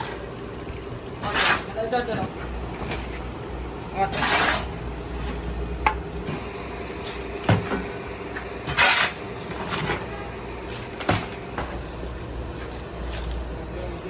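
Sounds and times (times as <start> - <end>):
steady low hum: 0.0 - 14.0
utensil scraping pan: 1.2 - 3.2, 4.0 - 5.5, 8.6 - 10.8.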